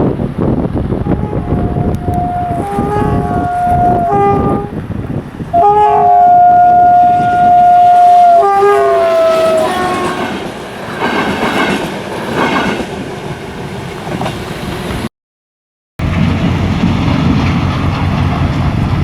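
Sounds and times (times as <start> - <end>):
train horn blasts: 1.0 - 4.9, 5.5 - 10.4
train wheels clattering on rails: 9.9 - 15.0, 16.0 - 19.0.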